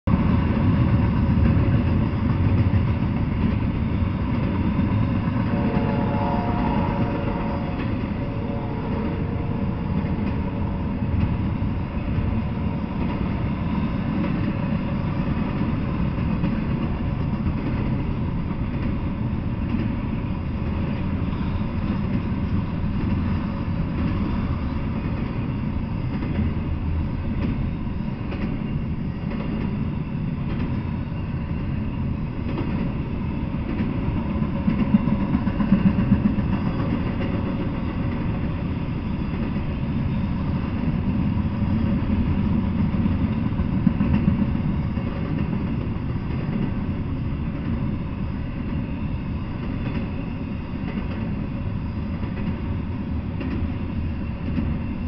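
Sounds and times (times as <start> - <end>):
freight train rumbling past: 0.0 - 55.0
faint whining tone: 3.8 - 16.0.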